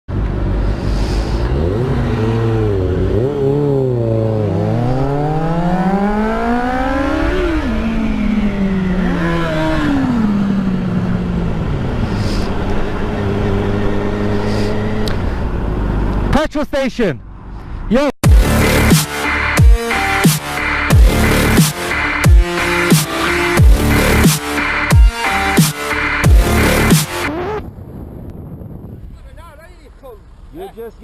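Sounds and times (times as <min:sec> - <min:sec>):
motorcycle engine revving: 0:00.1 - 0:16.2, 0:18.2 - 0:27.9
wind and road noise: 0:00.1 - 0:18.2, 0:26.5 - 0:31.0.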